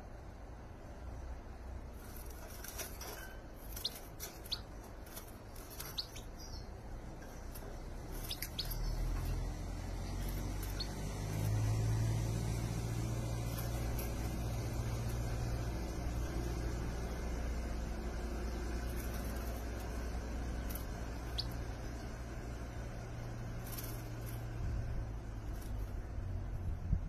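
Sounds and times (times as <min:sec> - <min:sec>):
low steady rumble: 0:00.0 - 0:27.0
small bird chirping: 0:02.0 - 0:24.7.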